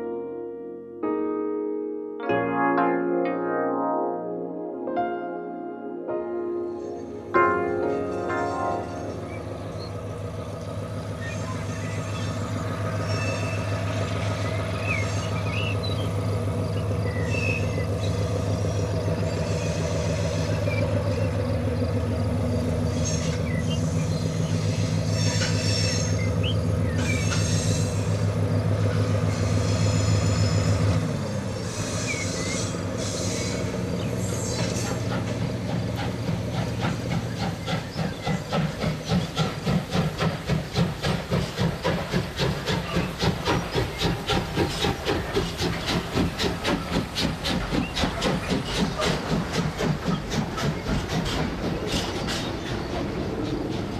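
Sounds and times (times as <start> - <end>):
model train engine hum: 8.8 - 53.9
hiss: 31.6 - 52.7.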